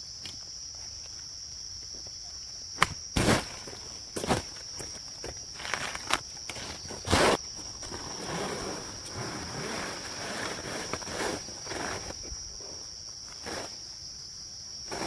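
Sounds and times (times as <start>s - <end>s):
insects buzzing: 0.0s - 15.0s
rustling scraping noise: 3.2s - 13.8s.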